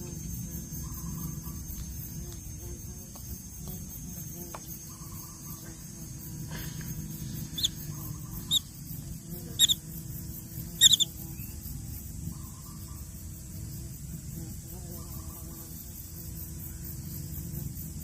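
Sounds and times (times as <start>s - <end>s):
baby birds chirping: 7.4s - 8.7s, 9.5s - 9.8s, 10.8s - 11.1s.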